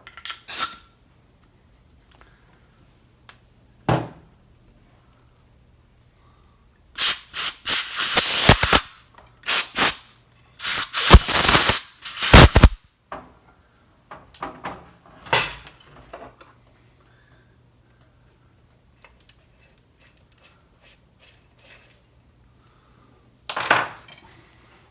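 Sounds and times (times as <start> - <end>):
pressurised spray hissing: 7.0 - 12.8.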